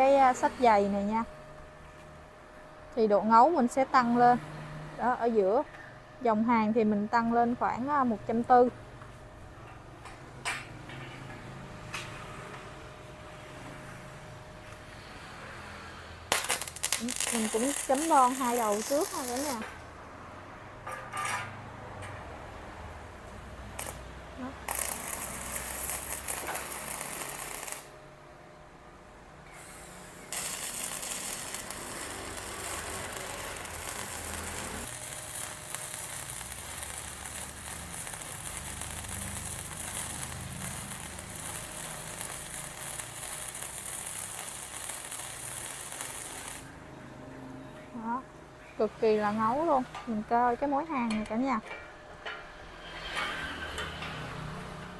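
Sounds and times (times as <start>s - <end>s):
welding arc crackling: 16.2s - 19.8s, 23.2s - 28.0s, 29.5s - 46.8s.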